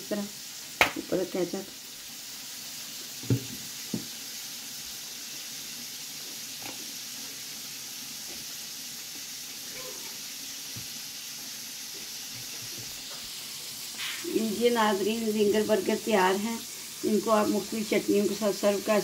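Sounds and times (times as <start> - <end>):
food sizzling in a pan: 0.0 - 19.0
knocks on a table: 3.2 - 4.1.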